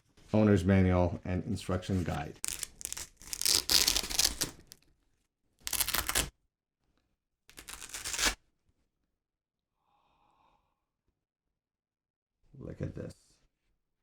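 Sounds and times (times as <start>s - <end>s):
packaging rustling and tearing: 2.3s - 4.8s, 5.6s - 6.3s, 7.5s - 8.4s.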